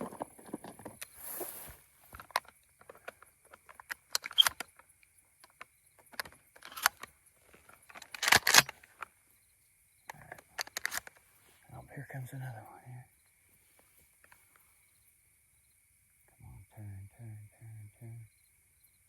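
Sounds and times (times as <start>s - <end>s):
shotgun shells clicking and rattling: 2.1s - 9.1s, 10.1s - 11.2s.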